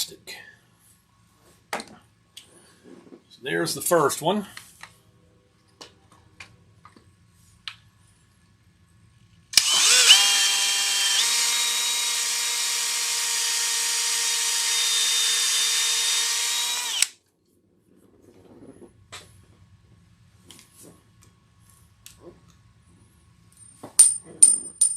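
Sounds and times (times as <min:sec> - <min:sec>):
power drill driving into wood: 0:09.6 - 0:17.1.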